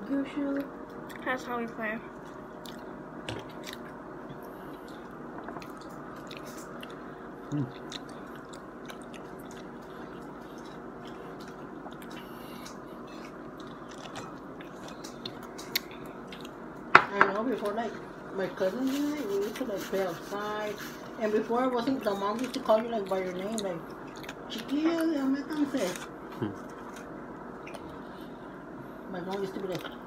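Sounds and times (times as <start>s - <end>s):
steady background hum: 0.0s - 30.0s
person biting and chewing: 4.7s - 16.6s.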